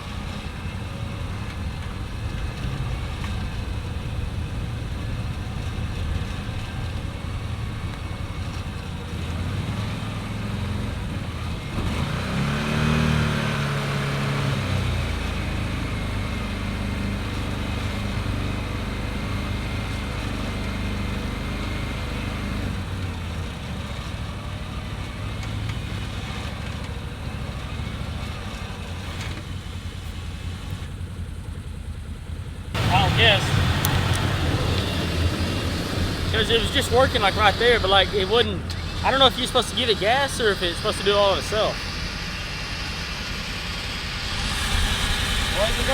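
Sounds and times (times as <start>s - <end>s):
engine revving: 0.0s - 31.0s, 32.7s - 45.9s
vehicle engines running: 0.0s - 45.9s
winch pulling: 32.8s - 44.7s.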